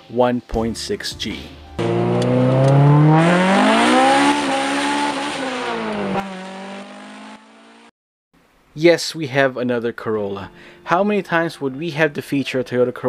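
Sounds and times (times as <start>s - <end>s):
car engine revving: 1.8s - 7.9s.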